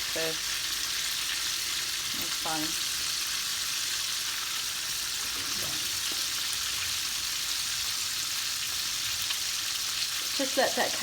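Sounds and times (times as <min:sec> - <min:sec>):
chicken deep-frying in oil: 0:00.0 - 0:11.0
faint crackles of frying: 0:00.0 - 0:11.0.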